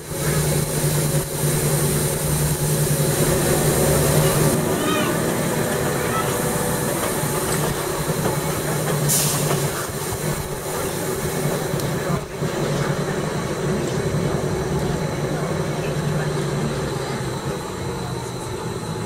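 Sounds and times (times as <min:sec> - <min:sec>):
electric train running: 0:00.0 - 0:19.0.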